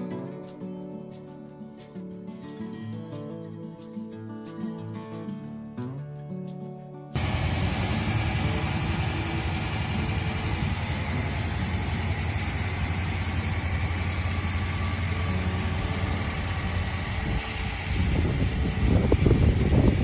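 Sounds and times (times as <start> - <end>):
car engine idling: 7.2 - 20.0.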